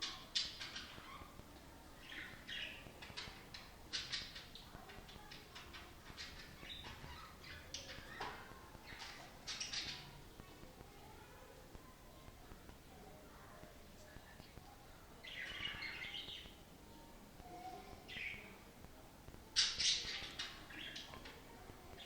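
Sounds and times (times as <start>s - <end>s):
budgerigar chirping and clicking: 0.0s - 10.2s, 14.4s - 16.6s.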